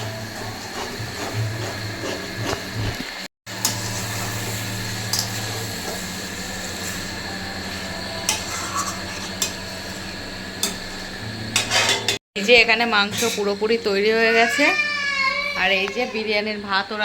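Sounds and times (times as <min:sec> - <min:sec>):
faint sizzle: 0:00.0 - 0:17.0.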